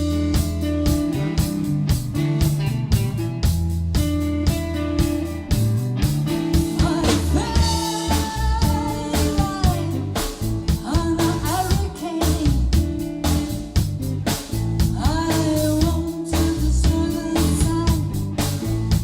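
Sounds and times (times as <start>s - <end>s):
rock-blues band playing: 0.0s - 19.0s
woman singing: 6.6s - 13.1s, 14.8s - 18.7s.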